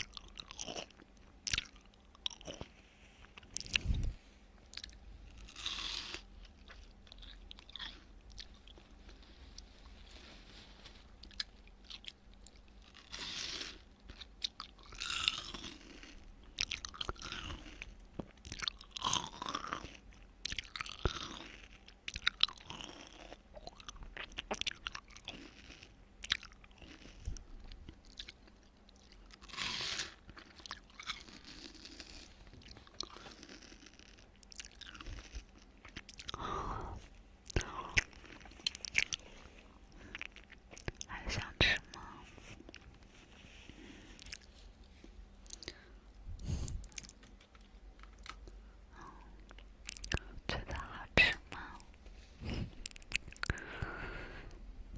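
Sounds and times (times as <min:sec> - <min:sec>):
crunchy bites and chewing: 0:00.0 - 0:09.2, 0:11.2 - 0:42.9, 0:43.7 - 0:44.6.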